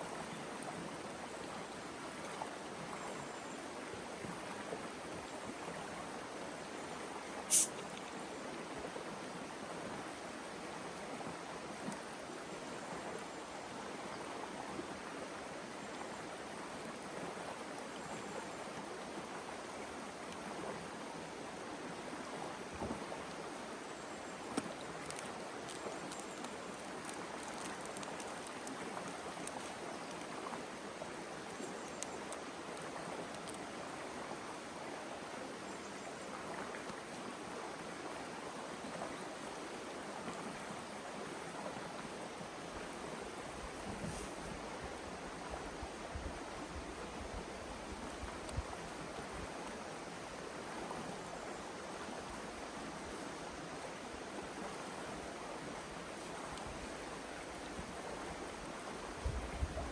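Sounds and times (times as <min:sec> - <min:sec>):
river water flowing over rocks: 0:00.0 - 0:59.2
small faint clicks: 0:24.5 - 0:30.3, 0:31.5 - 0:33.6.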